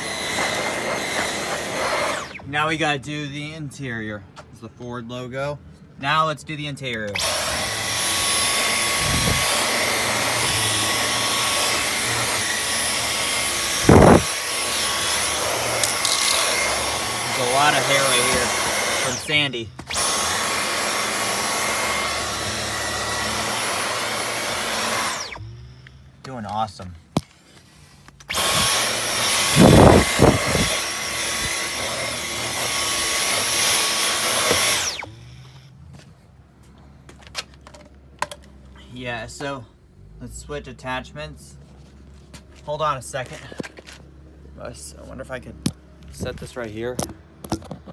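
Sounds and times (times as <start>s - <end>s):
vacuum cleaner running: 0.0s - 2.5s, 7.2s - 25.6s, 28.3s - 35.6s
cleaner head knocking and rubbing: 15.3s - 17.4s.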